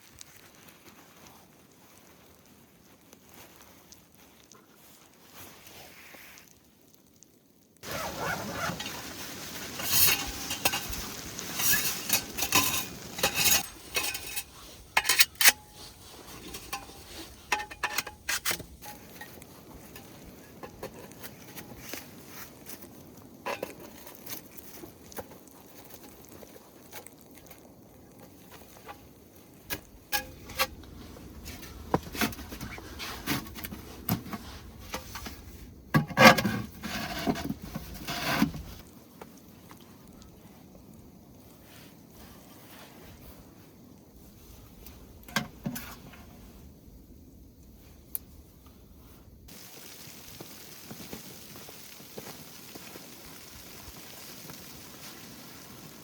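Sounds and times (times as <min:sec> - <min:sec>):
cookware clinking and scraping: 0:09.7 - 0:21.2.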